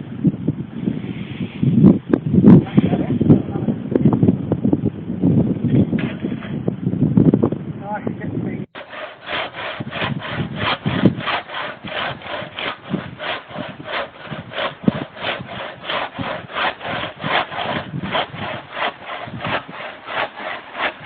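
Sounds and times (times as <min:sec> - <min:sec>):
hand saw cutting wood: 0:05.9 - 0:06.6, 0:08.8 - 0:21.0.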